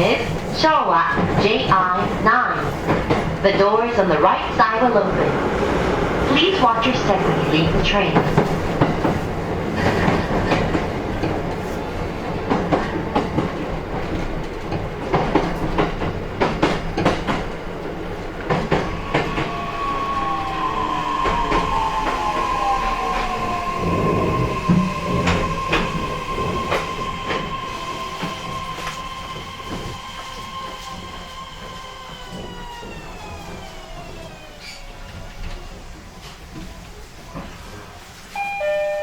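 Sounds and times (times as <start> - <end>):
train wheels clicking over rail joints: 0.0 - 5.0, 6.4 - 37.8
train motor whine: 18.6 - 35.2
high squeal: 18.9 - 35.0.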